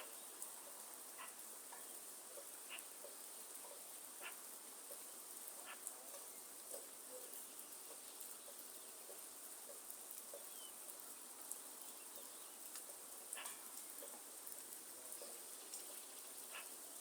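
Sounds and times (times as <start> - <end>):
rain falling: 0.0 - 17.0
drips tapping on leaves: 1.2 - 16.9
bird chirp: 10.3 - 10.8.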